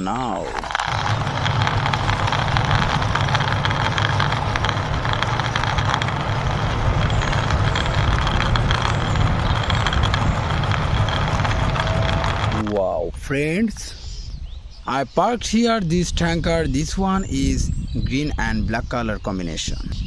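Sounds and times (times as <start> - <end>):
plastic toy wheels rolling: 0.0 - 12.8.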